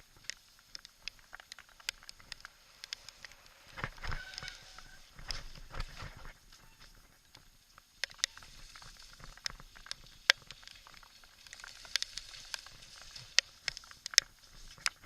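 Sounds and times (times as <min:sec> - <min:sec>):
faint steady hiss: 0:00.0 - 0:15.0
sharp ticks and taps: 0:00.1 - 0:03.5.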